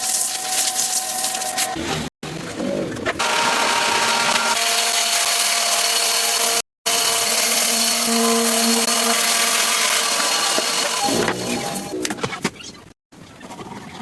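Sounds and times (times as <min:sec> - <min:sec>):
power tool whining: 0:03.2 - 0:11.9.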